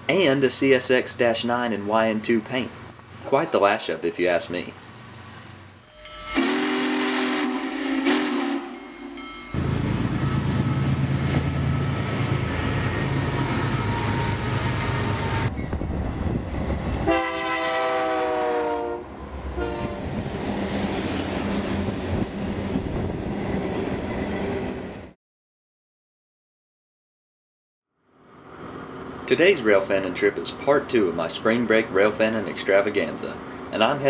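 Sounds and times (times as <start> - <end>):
diesel locomotive engine rumble: 0.0 - 25.2, 28.3 - 34.0
rolling train noise: 2.3 - 25.2, 28.3 - 34.0
chime train horn: 5.8 - 9.6, 17.1 - 20.0
steam locomotive whistle: 5.9 - 9.5, 12.6 - 15.5, 17.0 - 20.0.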